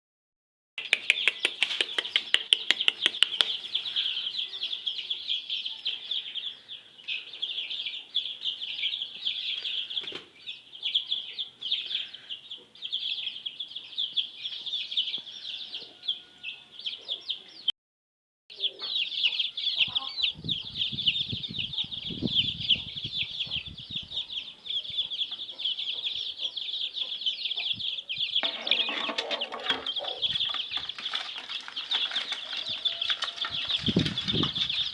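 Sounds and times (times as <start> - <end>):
sharp clicks: 0.8 - 3.6
chicks peeping: 0.8 - 17.7, 18.5 - 34.9.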